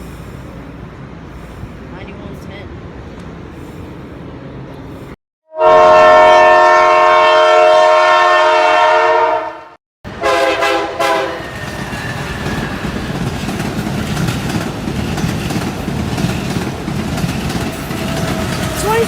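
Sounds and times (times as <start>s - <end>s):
train rumbling past: 0.0s - 19.0s
train horn: 5.5s - 12.1s
wheels clacking over rails: 11.4s - 19.0s.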